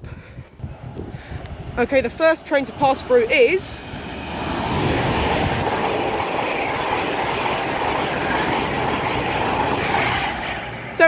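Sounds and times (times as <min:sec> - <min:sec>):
train wheels rushing on rail: 0:00.4 - 0:11.0.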